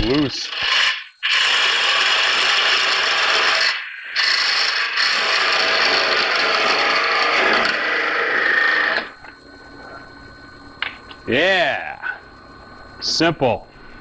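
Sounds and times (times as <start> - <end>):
lathe tool scraping wood: 0.5 - 9.1.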